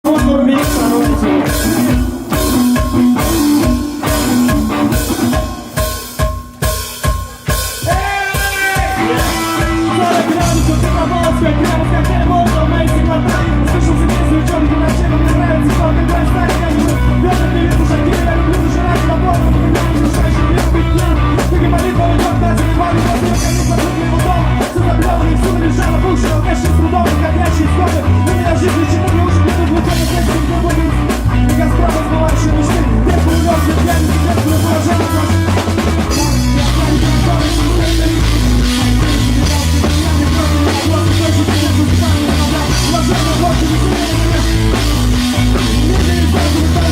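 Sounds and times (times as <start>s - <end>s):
driving bass line: 0.0s - 46.9s
rock band playing: 0.0s - 46.9s
drum hits: 0.1s - 27.3s
guitar chords: 0.1s - 46.9s.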